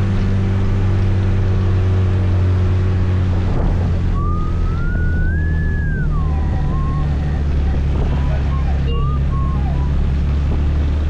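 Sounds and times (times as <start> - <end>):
wind noise: 3.1 - 11.0
rising and falling high tone: 4.0 - 10.1.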